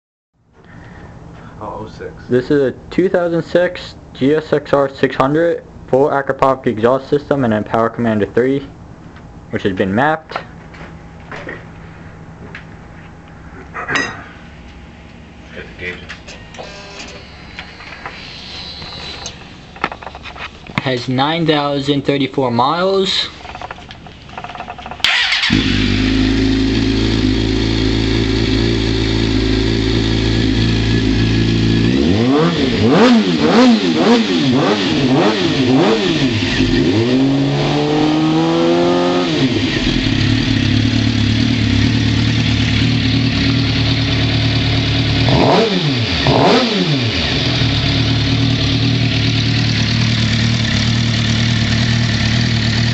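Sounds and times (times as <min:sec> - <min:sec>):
motorcycle engine idling: 0:23.4 - 0:32.0, 0:39.5 - 0:45.5, 0:47.2 - 0:52.9
motorcycle engine revving: 0:24.4 - 0:52.9.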